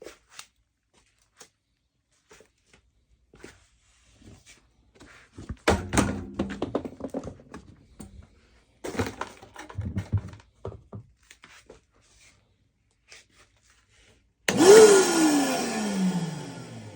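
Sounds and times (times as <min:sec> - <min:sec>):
plastic parts clattering: 0:08.8 - 0:10.7
vacuum motor whine: 0:14.5 - 0:16.9.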